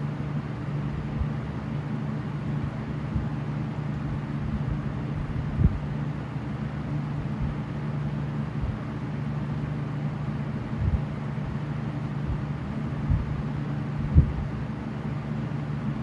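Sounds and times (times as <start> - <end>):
box fans running: 0.0 - 16.0
wind buffeting microphone thumps: 4.5 - 5.9, 10.7 - 11.1, 12.3 - 13.4, 14.0 - 14.6.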